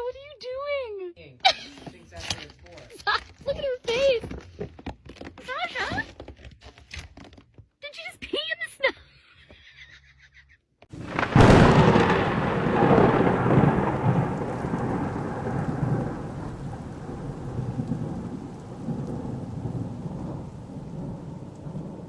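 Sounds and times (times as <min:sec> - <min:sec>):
thunder crack and rumble: 0:11.0 - 0:22.0.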